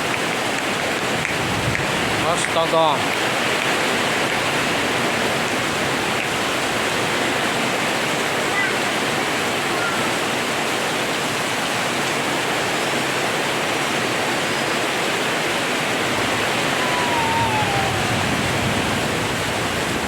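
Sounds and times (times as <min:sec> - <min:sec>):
heavy rain pouring: 0:00.0 - 0:20.0
faint falling whistle: 0:16.2 - 0:19.8.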